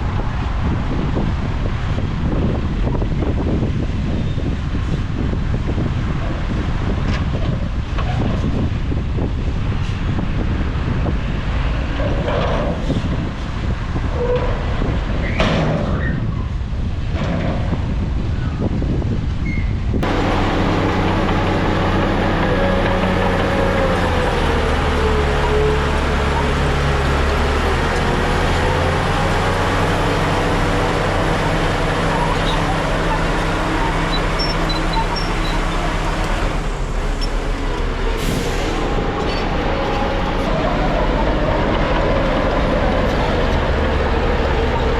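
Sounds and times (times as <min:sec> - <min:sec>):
bulldozer engine rumbling: 0:00.0 - 0:44.9
metallic squeals: 0:32.0 - 0:36.0, 0:38.2 - 0:41.0.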